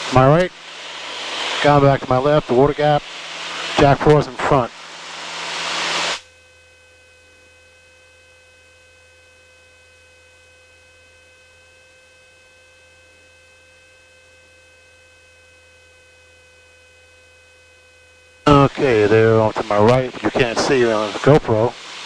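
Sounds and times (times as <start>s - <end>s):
thin high intercom whine: 0.0s - 4.8s, 18.2s - 22.0s
faint electrical hum: 13.0s - 22.0s
cockpit noise rush: 18.5s - 21.8s.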